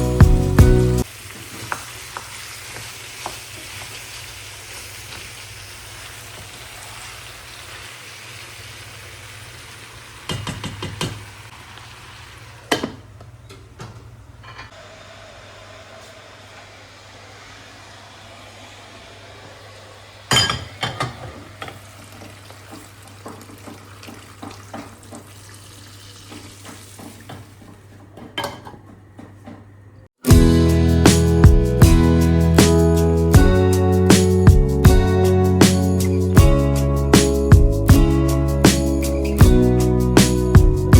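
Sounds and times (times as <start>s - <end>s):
dishes and utensils clinking: 20.3s - 21.8s.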